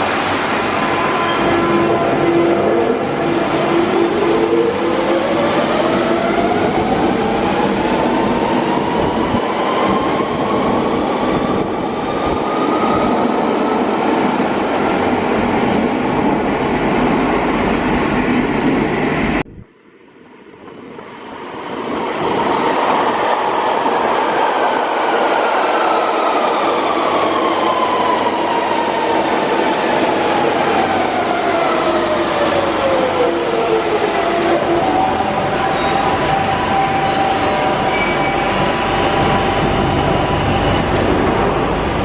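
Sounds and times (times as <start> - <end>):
train wheels rumbling and clattering: 34.0 - 42.0.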